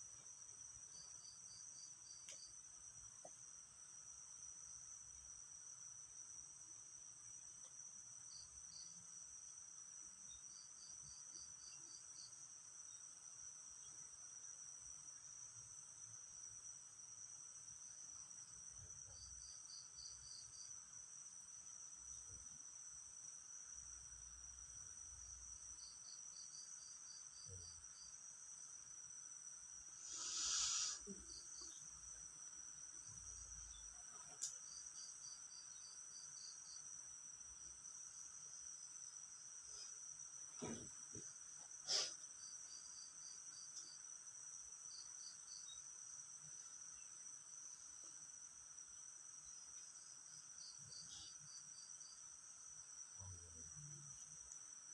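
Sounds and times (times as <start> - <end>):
insect rapid chirps: 0.0 - 54.9
insects droning: 0.0 - 54.9.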